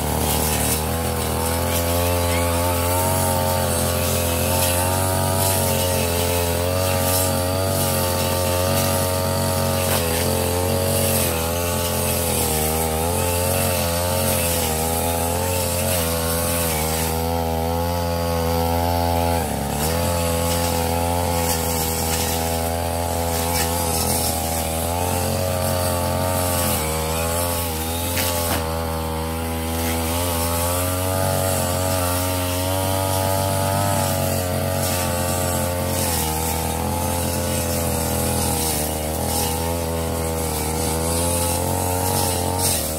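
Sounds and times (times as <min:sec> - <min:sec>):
brush cutter running at high revs: 0:00.0 - 0:42.9.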